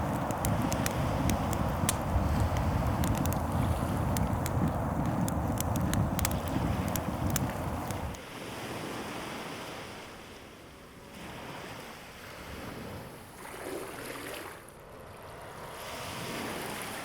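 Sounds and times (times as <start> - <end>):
ocean waves washing onto shore: 0.0 - 10.5.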